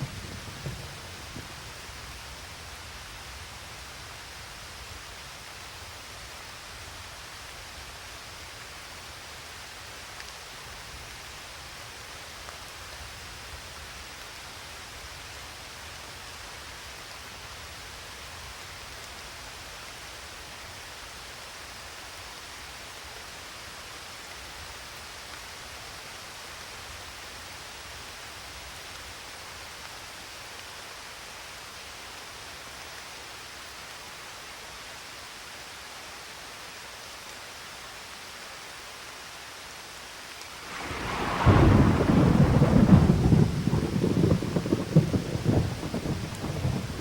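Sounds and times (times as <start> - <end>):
steady rainfall: 0.0 - 47.0.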